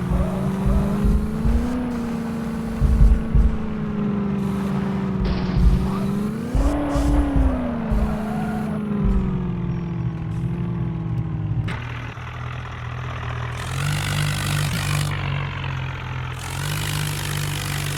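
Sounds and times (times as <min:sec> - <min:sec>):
hissing noise: 0:00.0 - 0:09.6
vehicle engine running: 0:00.0 - 0:17.9.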